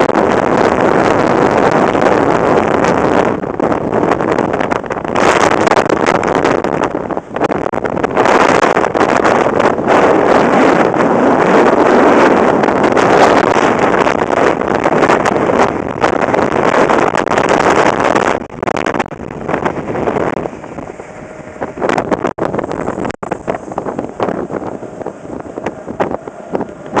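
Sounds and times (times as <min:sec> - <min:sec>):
strong gusting wind on microphone: 0:00.0 - 0:27.0.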